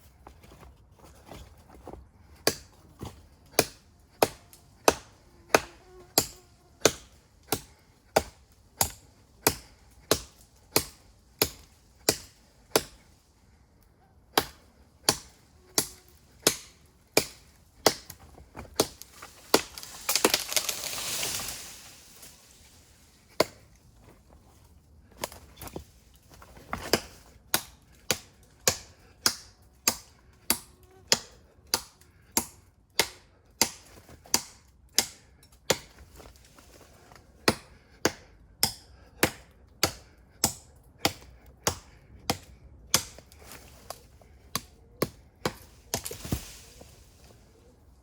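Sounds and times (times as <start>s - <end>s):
knife chopping tree trunk: 0.4s - 13.2s, 14.3s - 22.2s, 23.3s - 23.6s, 25.2s - 36.3s, 37.4s - 47.2s
crackling rustling noise: 18.4s - 26.7s.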